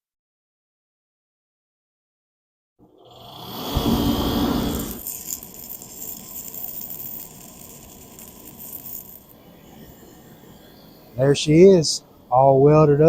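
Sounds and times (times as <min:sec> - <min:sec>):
arc welding buzz and crackle: 0:03.1 - 0:11.6.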